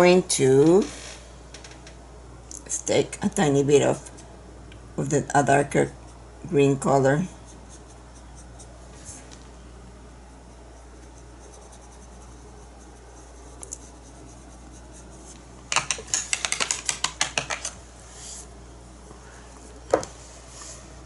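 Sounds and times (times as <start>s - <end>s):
faint room hum: 0.0s - 21.0s
paintbrush tapping: 10.8s - 17.8s.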